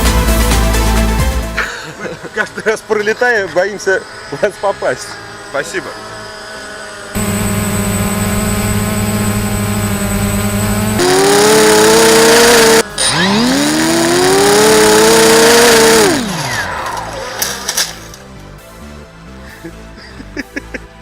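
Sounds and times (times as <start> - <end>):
drone propellers whining: 1.9 - 18.5.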